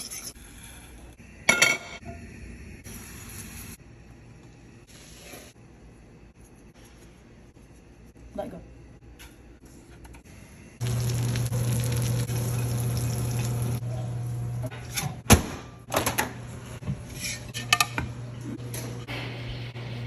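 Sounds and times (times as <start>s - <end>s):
steady hum with hiss: 10.3s - 14.7s.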